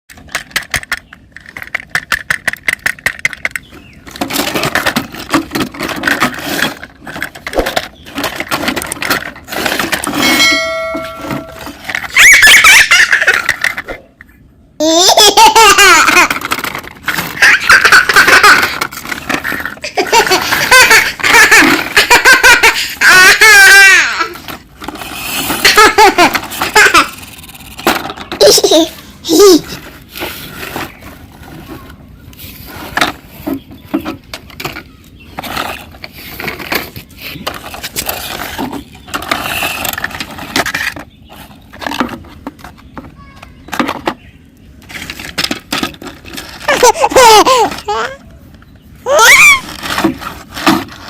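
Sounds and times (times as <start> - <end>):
young child laughing: 12.1 - 14.0, 14.8 - 16.6, 17.2 - 24.4, 25.4 - 27.4, 28.4 - 29.8, 46.6 - 48.3, 49.0 - 49.7.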